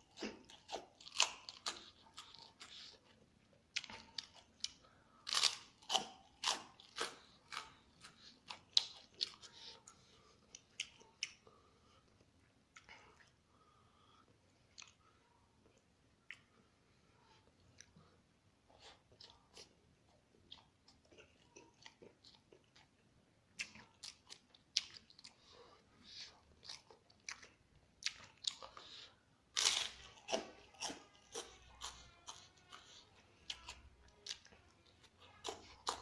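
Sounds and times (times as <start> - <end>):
crunching fried food: 0.0 - 3.0, 3.7 - 9.8, 26.1 - 36.0.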